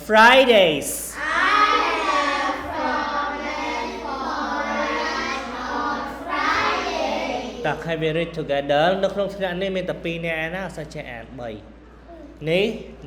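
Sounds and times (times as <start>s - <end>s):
children chanting in unison: 0.0s - 7.8s.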